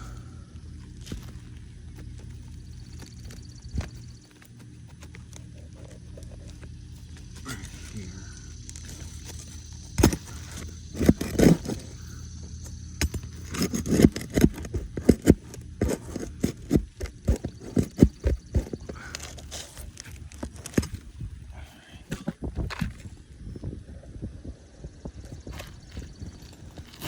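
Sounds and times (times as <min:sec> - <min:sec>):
shingle ripper scraping: 0:00.0 - 0:21.3, 0:25.5 - 0:27.0.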